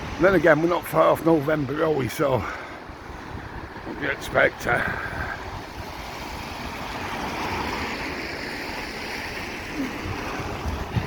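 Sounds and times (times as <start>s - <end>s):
tyres hissing on wet road: 0.0s - 11.0s.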